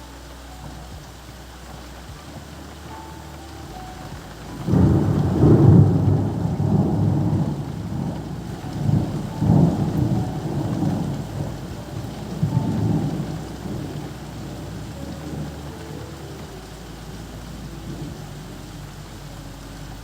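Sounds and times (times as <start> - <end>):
steady rain: 0.0 - 20.0
thunder rumbling: 0.0 - 20.0.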